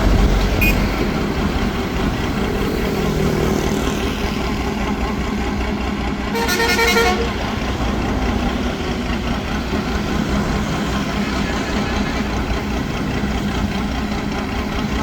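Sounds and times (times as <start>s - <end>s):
horn toot: 6.3s - 7.4s.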